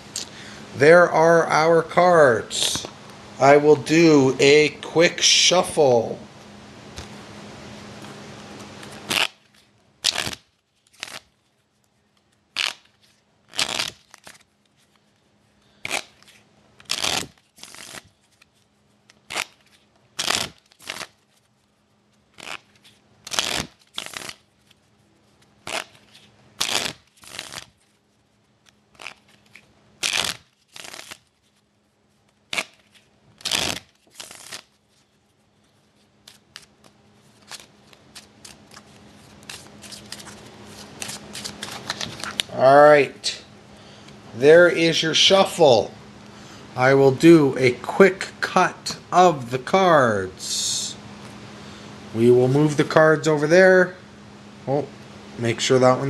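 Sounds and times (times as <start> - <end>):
trading cards being shuffled: 8.0 - 42.7.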